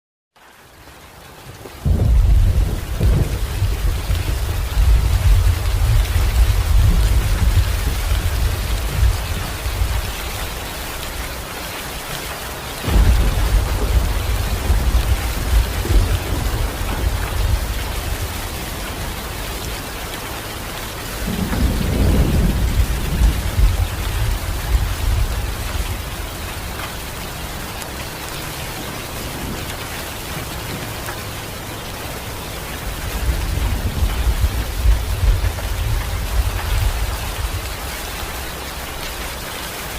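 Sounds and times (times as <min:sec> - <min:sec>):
steady rain falling: 0:00.4 - 0:39.9
thunder rumbling: 0:01.8 - 0:11.2, 0:12.8 - 0:20.4, 0:21.0 - 0:27.7, 0:32.8 - 0:39.2.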